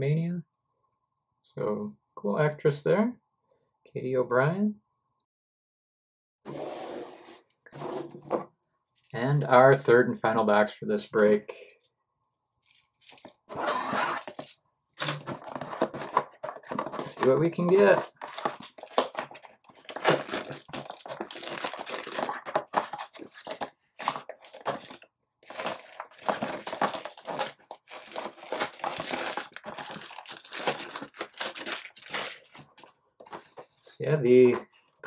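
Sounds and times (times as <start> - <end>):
plastic wrapping tearing and crinkling: 14.1 - 32.9.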